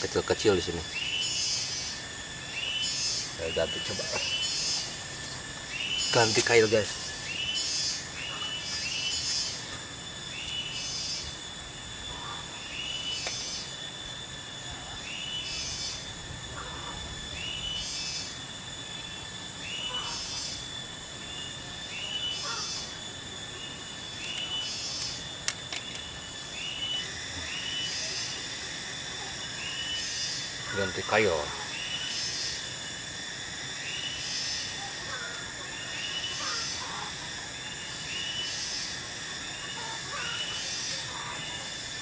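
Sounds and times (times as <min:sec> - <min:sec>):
bird calling: 0:00.0 - 0:11.4, 0:14.9 - 0:20.6, 0:21.2 - 0:23.0, 0:23.6 - 0:28.5, 0:33.8 - 0:38.9, 0:39.5 - 0:41.8
high insect drone: 0:00.0 - 0:42.0.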